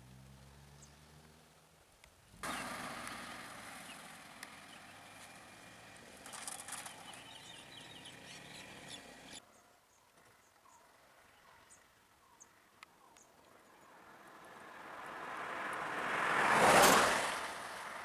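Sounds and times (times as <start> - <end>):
small birds chirping: 0.7 - 1.4, 2.0 - 14.6.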